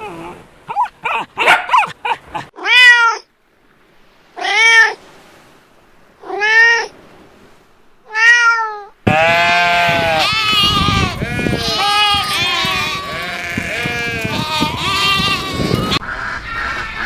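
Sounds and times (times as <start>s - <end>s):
cat meowing: 2.6s - 3.3s, 8.1s - 16.0s
sheep bleating: 9.0s - 16.0s.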